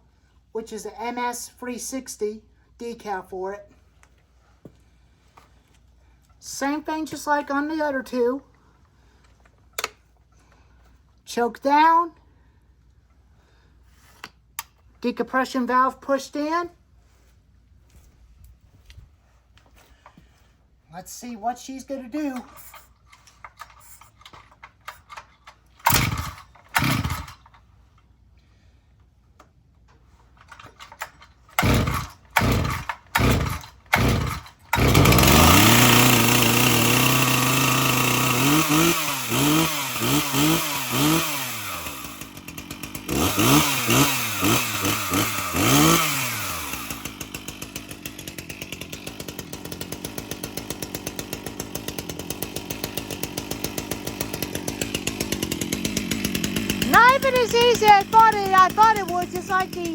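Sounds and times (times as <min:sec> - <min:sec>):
starter rope pulls: 0:22.2 - 0:27.7, 0:29.9 - 0:59.9
chainsaw engine revving: 0:25.8 - 0:27.5, 0:30.9 - 0:59.9.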